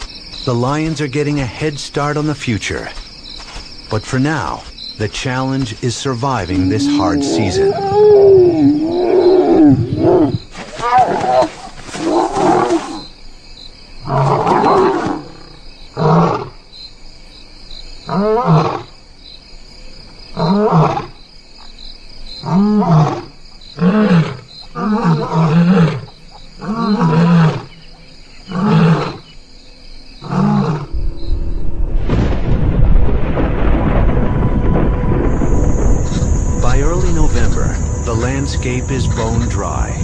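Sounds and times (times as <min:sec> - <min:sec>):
lion roaring: 0:06.6 - 0:13.0, 0:14.1 - 0:16.5, 0:30.2 - 0:31.3
low rumble: 0:30.9 - 0:40.0.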